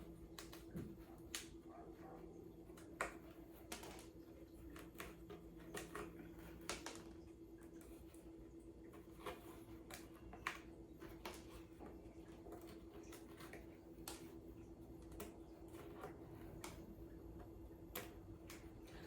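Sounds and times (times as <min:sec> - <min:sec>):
faint steady hum: 0:00.0 - 0:19.0
cardboard panels tapping and clicking: 0:02.7 - 0:07.2.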